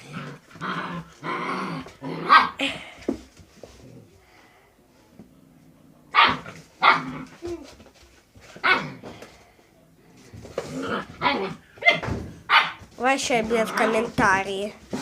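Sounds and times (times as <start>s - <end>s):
dog barking: 6.1s - 7.1s, 11.2s - 12.8s.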